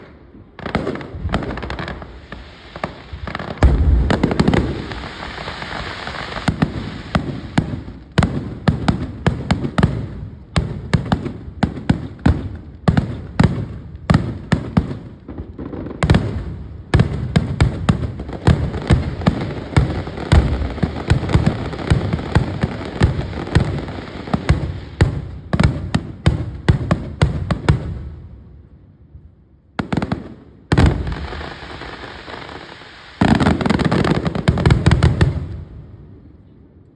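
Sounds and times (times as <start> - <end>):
fireworks bursts and crackling: 0.0 - 28.3, 29.8 - 35.9
heavy low firework boom: 3.6 - 5.4.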